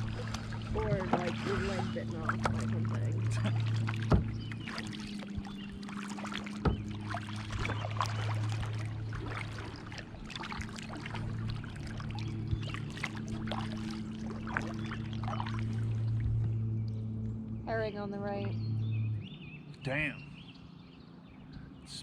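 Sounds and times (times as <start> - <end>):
paddle splashes and drips: 0.0 - 17.3
steady low hum: 0.0 - 22.0.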